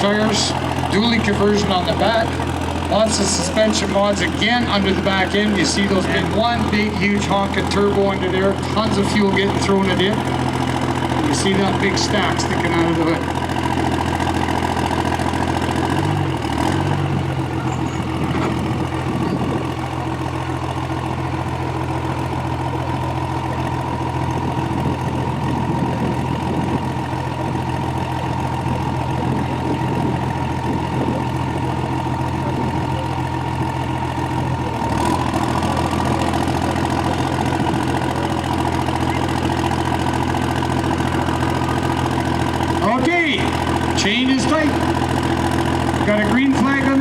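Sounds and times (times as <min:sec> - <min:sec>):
steady high whine: 0:00.0 - 0:13.8
diesel truck idling: 0:00.0 - 0:47.0.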